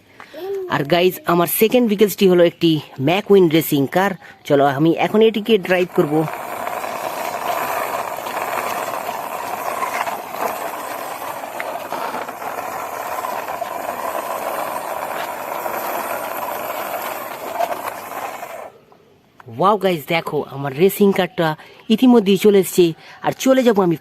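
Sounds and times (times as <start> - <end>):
toy car wheels rolling on wall: 5.0 - 18.8.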